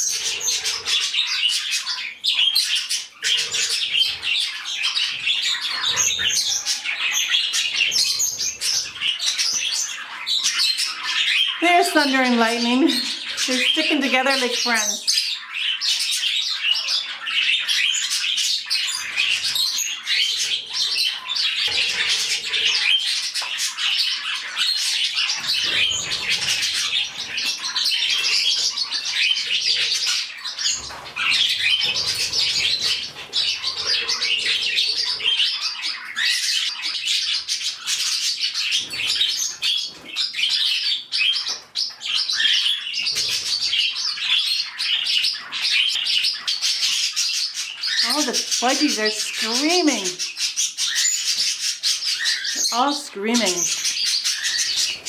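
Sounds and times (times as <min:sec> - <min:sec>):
budgies chattering and screeching: 0:00.0 - 0:55.0.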